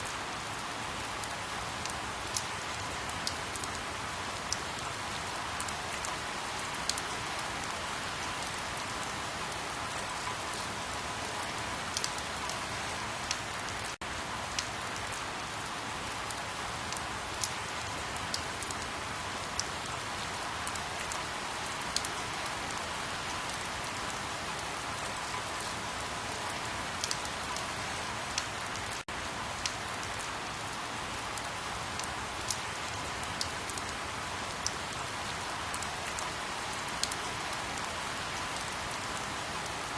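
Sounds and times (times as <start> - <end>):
steady rain hiss: 0.0 - 39.9
raindrops ticking: 27.0 - 27.6.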